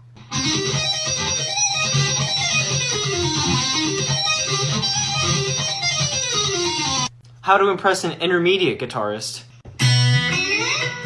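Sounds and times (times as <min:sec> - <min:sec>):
guitar playing fast lick: 0:00.2 - 0:07.1, 0:09.8 - 0:11.0.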